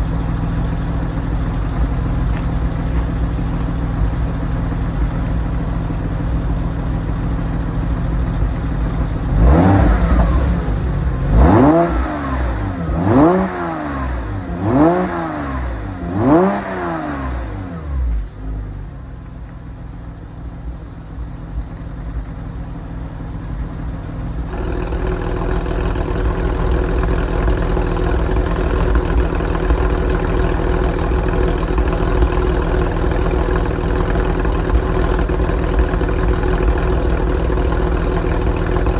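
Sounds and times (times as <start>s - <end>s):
car engine idling: 0.0s - 38.9s
exhaust drone: 0.0s - 38.9s
engine revving: 7.7s - 18.2s.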